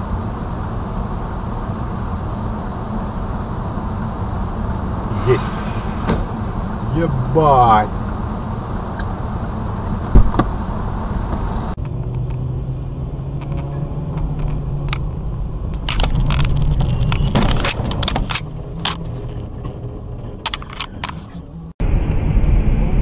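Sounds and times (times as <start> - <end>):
car engine and road noise: 0.0 - 22.4
sharp knock: 5.1 - 6.8.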